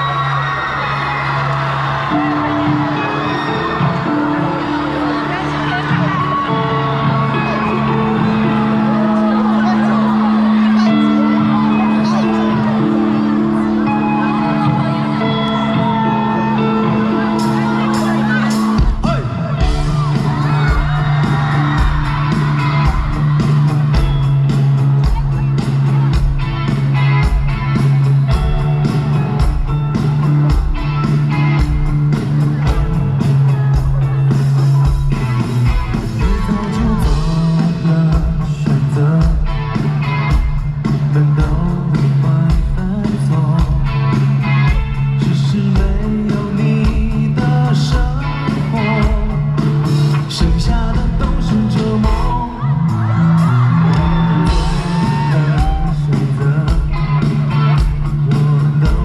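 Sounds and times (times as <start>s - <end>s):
crowd yelling: 0.0s - 59.0s
rock band over loud pa: 0.0s - 59.0s
person singing: 32.6s - 59.0s.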